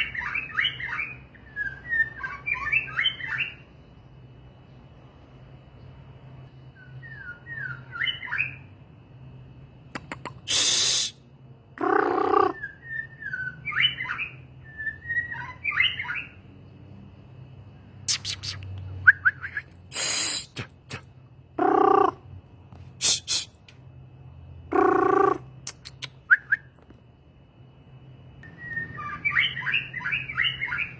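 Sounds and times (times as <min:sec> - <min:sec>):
songbird whistling: 0:00.0 - 0:03.7, 0:06.7 - 0:08.8, 0:11.8 - 0:16.4, 0:18.1 - 0:20.5, 0:24.7 - 0:26.8, 0:28.4 - 0:30.9
harsh rasping bird calls: 0:09.9 - 0:16.4, 0:18.0 - 0:22.4, 0:23.0 - 0:23.8, 0:24.7 - 0:26.7, 0:28.4 - 0:30.9.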